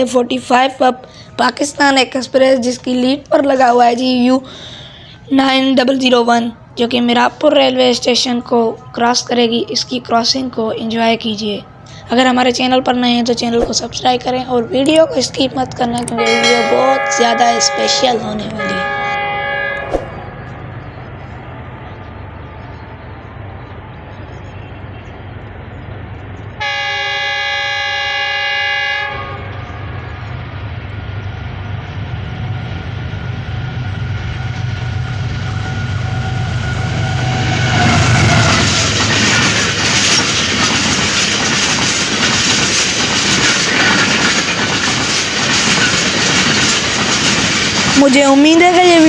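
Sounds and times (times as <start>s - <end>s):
diesel locomotive engine humming: 0.0s - 49.0s
train horn: 16.2s - 20.3s, 26.6s - 30.0s, 34.4s - 39.0s
clickety-clack of train wheels: 37.6s - 49.0s.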